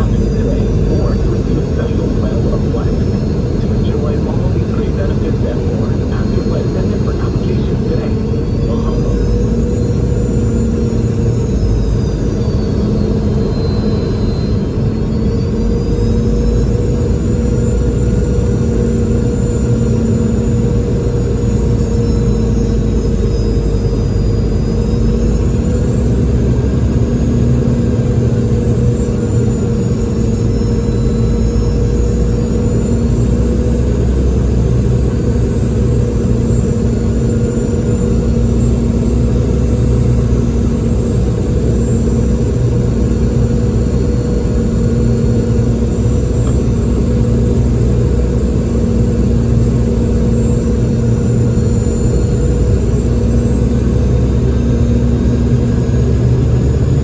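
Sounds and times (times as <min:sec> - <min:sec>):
high engine whines: 0:00.0 - 0:57.0
jet engine drone in cabin: 0:00.0 - 0:57.0.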